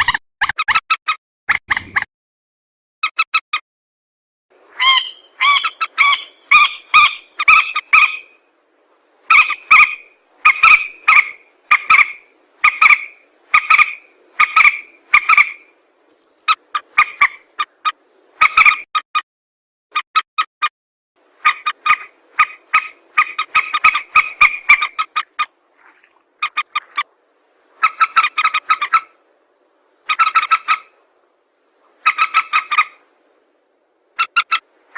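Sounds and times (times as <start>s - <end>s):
harsh rail bird calls: 4.7s - 8.4s, 9.2s - 15.8s, 21.4s - 27.1s, 27.8s - 29.2s, 30.0s - 31.0s, 31.9s - 33.0s.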